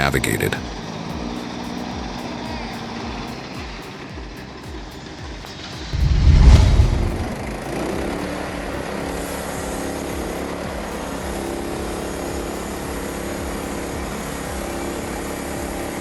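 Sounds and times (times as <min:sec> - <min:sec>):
vehicle engine running: 0:00.0 - 0:16.0
loud low thump: 0:05.9 - 0:07.6.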